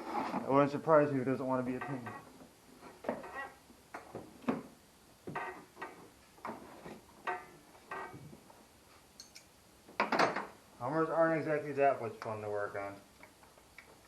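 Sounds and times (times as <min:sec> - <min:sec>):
tools clicking and clinking: 0:09.2 - 0:09.5.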